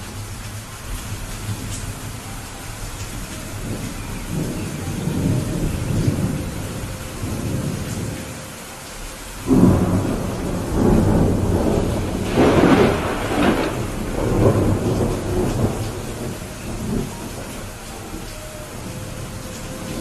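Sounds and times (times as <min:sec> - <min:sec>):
steady rain: 0:00.0 - 0:20.0
thunder rumbling: 0:00.0 - 0:20.0
thunder clap: 0:09.5 - 0:18.8.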